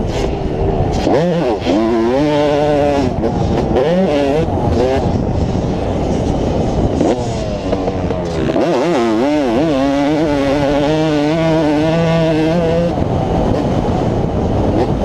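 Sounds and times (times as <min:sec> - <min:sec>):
loud rushing noise: 0:00.0 - 0:11.6
motocross bike engine revving: 0:00.0 - 0:15.0.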